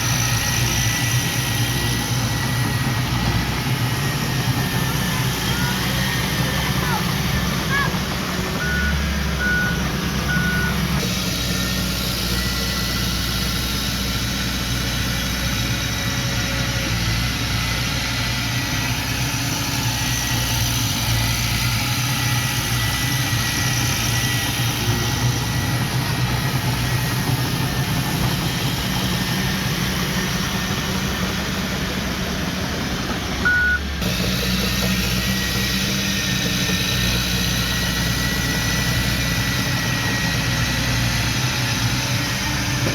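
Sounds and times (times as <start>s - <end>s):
heavy machinery diesel engines: 0.0s - 42.9s
reversing beeps: 8.6s - 11.0s, 33.4s - 34.0s.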